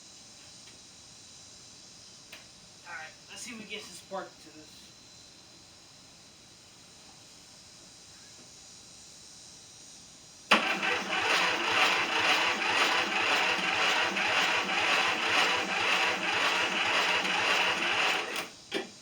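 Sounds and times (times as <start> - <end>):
engine cranking with electric starter: 10.5 - 18.9.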